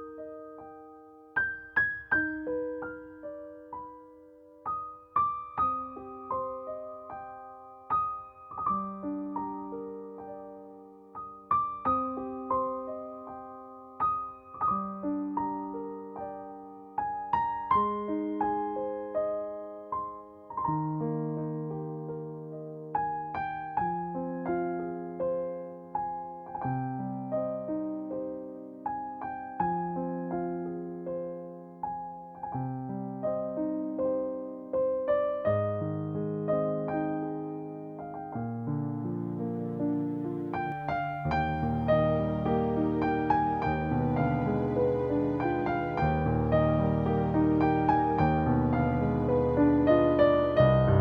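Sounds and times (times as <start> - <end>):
solo piano piece: 0.0 - 51.0.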